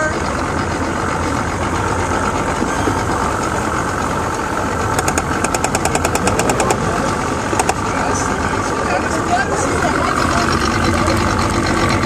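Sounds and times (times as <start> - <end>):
engine running: 0.0 - 12.0
rapid sharp clicks: 5.0 - 6.8, 7.6 - 7.8.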